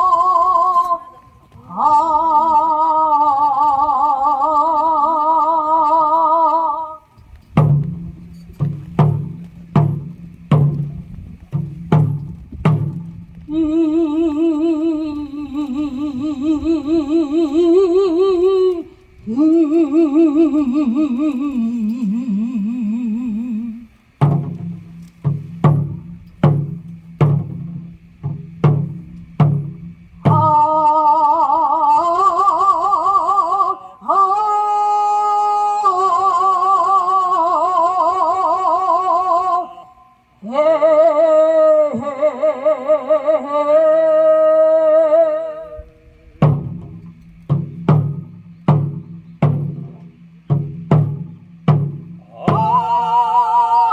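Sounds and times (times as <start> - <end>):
folk singing with vibrato: 0.0 - 7.4, 13.5 - 24.2, 30.2 - 46.8, 52.2 - 53.9
drum strokes: 7.5 - 13.8, 24.0 - 31.2, 46.4 - 53.4.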